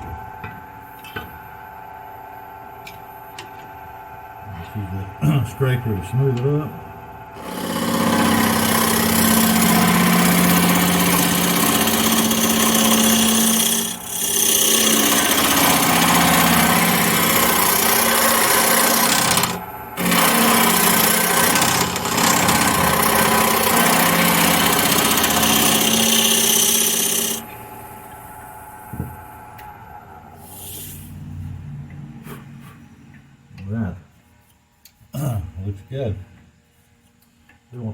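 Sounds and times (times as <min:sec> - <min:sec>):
scraper rasping on spinning wood: 0:07.4 - 0:27.4
wood lathe humming: 0:07.4 - 0:28.2.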